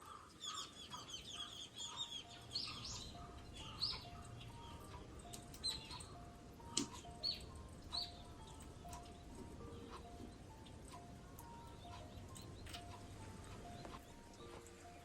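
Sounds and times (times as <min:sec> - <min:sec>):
birds chirping and twittering: 0:00.0 - 0:15.0.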